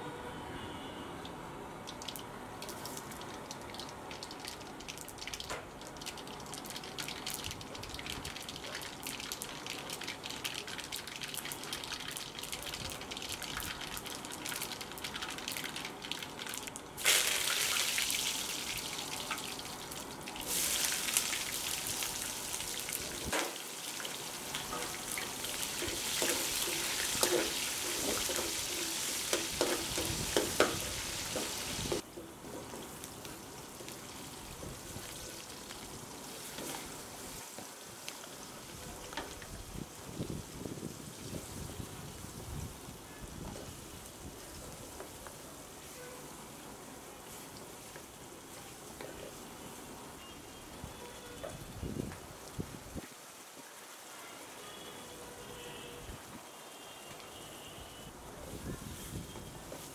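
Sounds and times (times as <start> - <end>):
seeds popping in hot oil: 1.8 - 36.8
loud sizzling in a pan: 4.6 - 40.1.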